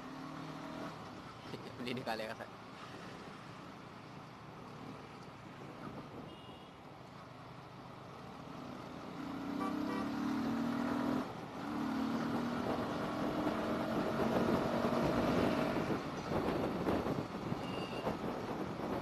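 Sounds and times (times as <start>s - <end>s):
motorcycle engine accelerating: 9.2s - 15.9s
wind noise: 13.6s - 19.0s.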